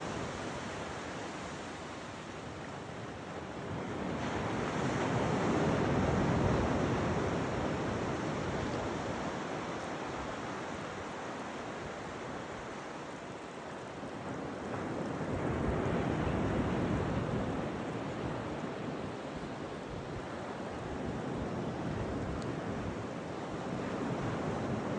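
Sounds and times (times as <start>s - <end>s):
surf washing in shallows: 0.0s - 24.9s
wind buffeting microphone: 13.9s - 24.9s.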